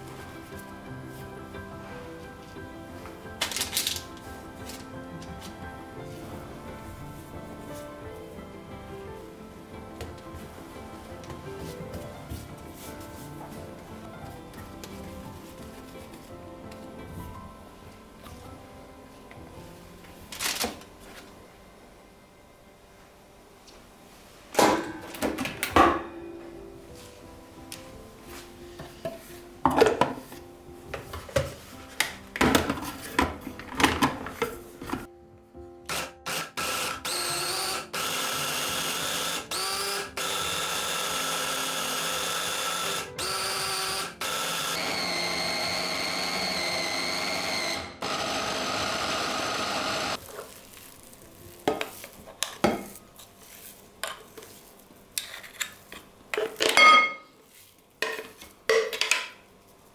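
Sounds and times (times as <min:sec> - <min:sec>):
utensils and dishes clattering: 0:29.0 - 0:30.4, 0:32.4 - 0:35.1, 0:55.2 - 0:57.4, 0:58.0 - 0:59.4
blender motor whirring: 0:35.9 - 0:50.2.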